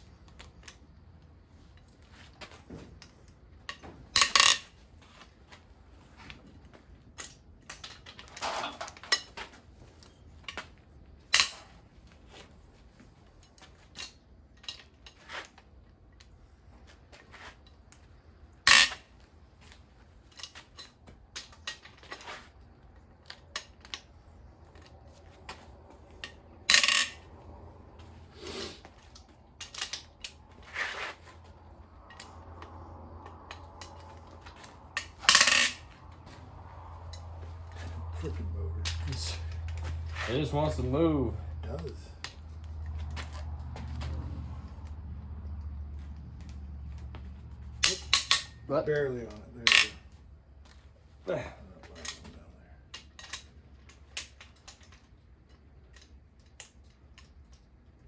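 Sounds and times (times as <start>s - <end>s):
hand tools clanking on metal: 3.7s - 4.7s, 7.2s - 10.6s, 11.3s - 11.7s, 18.7s - 19.0s, 24.8s - 27.3s, 32.0s - 44.1s, 47.7s - 50.2s, 51.3s - 55.1s.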